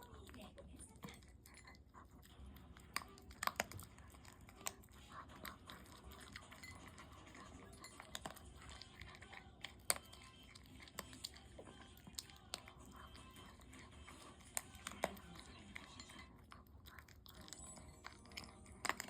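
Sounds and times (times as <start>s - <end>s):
dog chewing and crunching food: 0.0s - 19.0s.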